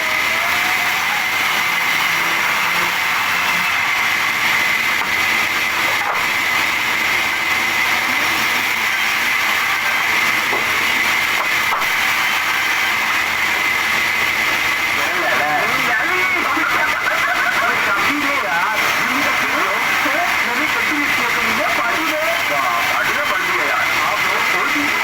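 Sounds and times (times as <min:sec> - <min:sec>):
sawmill machinery running: 0:00.0 - 0:25.0
thin high whine: 0:11.8 - 0:25.0.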